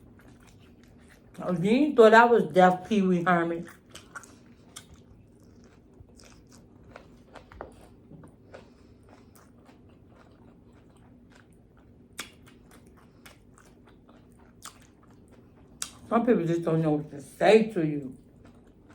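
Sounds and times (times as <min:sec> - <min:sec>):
person chewing and biting food: 0:00.0 - 0:01.4, 0:03.7 - 0:16.1, 0:18.2 - 0:18.9
wet mouth smacks and clicks: 0:12.2 - 0:12.6.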